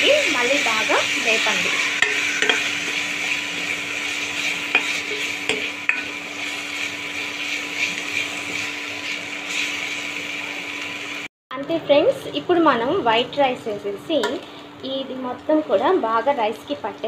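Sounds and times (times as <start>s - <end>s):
food sizzling in oil: 0.0s - 11.3s
spatula scraping a pan: 0.6s - 9.9s.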